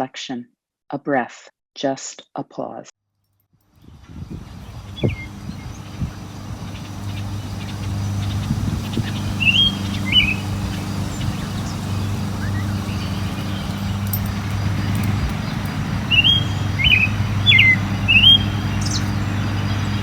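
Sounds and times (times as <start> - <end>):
birds chirping: 3.8 - 20.0
steady low hum: 4.1 - 20.0.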